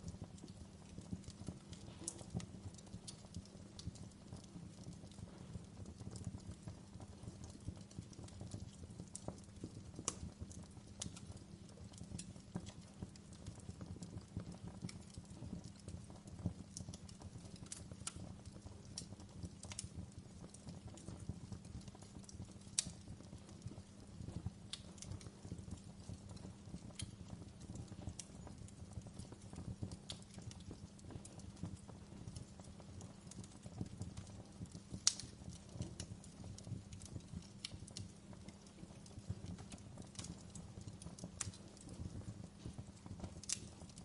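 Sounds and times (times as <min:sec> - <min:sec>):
fire crackling and popping: 0:00.0 - 0:44.0
fire flames rumbling: 0:00.0 - 0:44.0.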